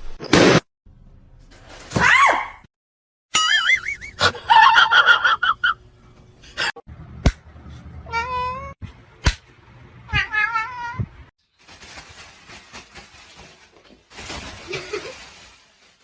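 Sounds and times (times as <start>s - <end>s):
cat meowing: 8.1s - 8.8s, 10.1s - 11.1s.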